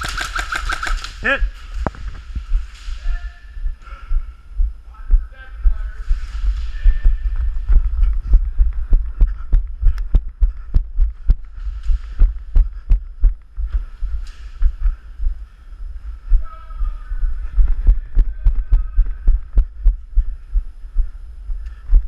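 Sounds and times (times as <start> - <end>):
airsoft gun shots: 0.0 - 1.3.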